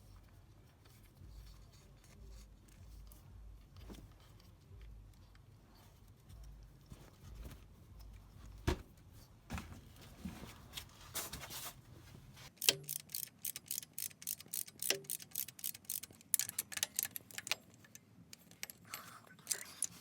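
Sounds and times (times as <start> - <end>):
sharp metal tool clicks: 12.6 - 18.8.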